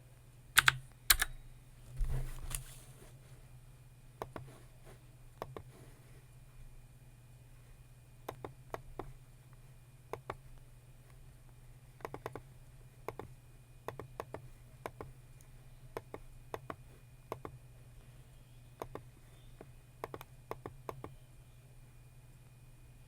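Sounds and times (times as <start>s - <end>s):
steady low hum: 0.0s - 23.0s
keyboard keys clicking: 0.6s - 1.4s.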